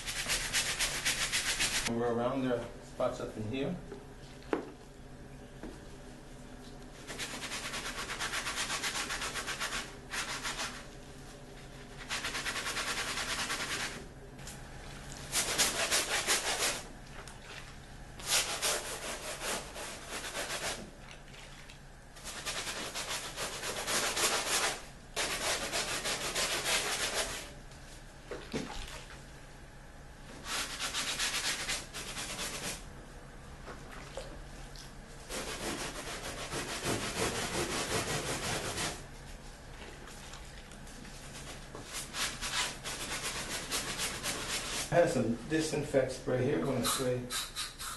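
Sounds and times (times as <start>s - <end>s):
brush scrubbing wet fabric: 0.0s - 1.9s, 7.0s - 11.0s, 11.6s - 14.0s, 14.9s - 27.5s, 30.4s - 32.8s, 35.2s - 45.3s.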